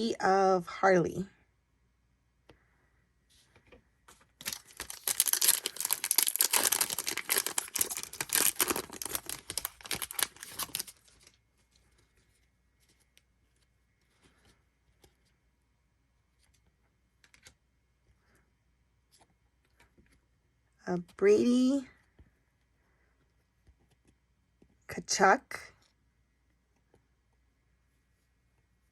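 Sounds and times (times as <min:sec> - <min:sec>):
card pack wrapper tearing: 0:04.4 - 0:11.2.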